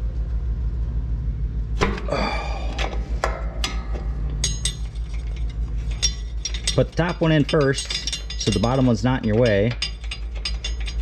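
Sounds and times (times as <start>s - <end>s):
steady low hum: 0.0s - 11.0s
metal tools clinking on steel: 3.6s - 11.0s.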